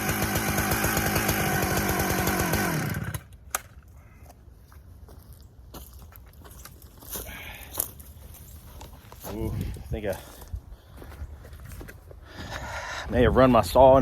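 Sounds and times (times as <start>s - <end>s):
chainsaw running and stopping: 0.0s - 3.5s.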